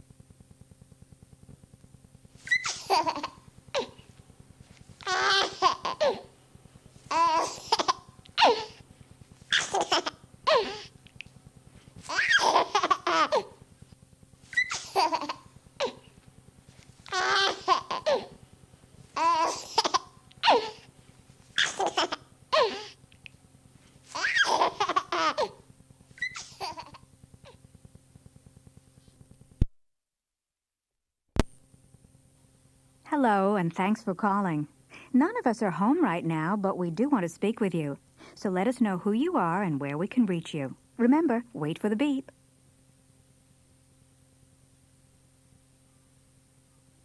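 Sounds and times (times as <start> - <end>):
faint tape hum: 0.0 - 29.7, 31.4 - 47.0
baby giggling: 2.5 - 4.0, 5.0 - 6.3, 7.1 - 8.8, 9.5 - 10.8, 12.1 - 13.6, 14.6 - 16.0, 17.1 - 18.4, 19.2 - 20.8, 21.6 - 22.9, 24.1 - 25.6, 26.2 - 27.0.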